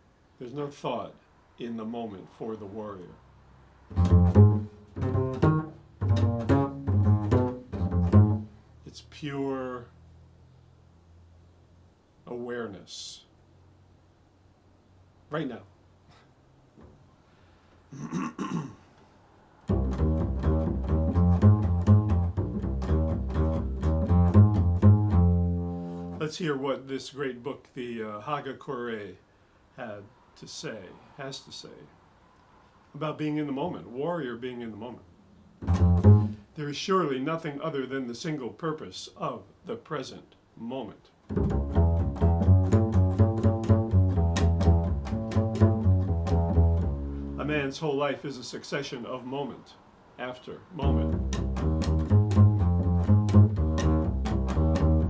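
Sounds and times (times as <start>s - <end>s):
double bass low notes: 3.9s - 9.2s, 19.7s - 26.3s, 35.6s - 36.5s, 41.3s - 47.7s, 50.8s - 55.0s.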